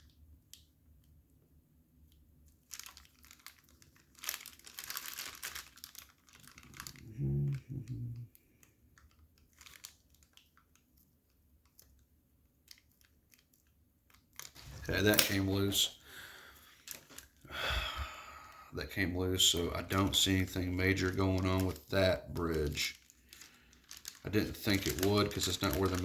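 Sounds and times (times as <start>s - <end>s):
plastic bag crinkling: 2.6s - 7.1s, 9.0s - 10.7s, 12.7s - 17.4s, 19.4s - 26.0s
person humming: 7.0s - 8.3s.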